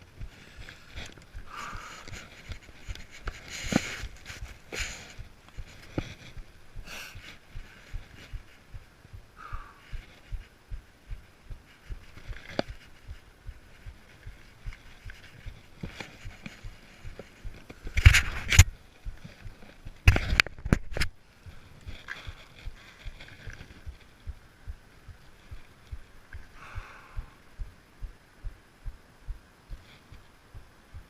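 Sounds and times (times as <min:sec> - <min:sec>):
mountain bike thuds and rattles: 0:15.8 - 0:21.1.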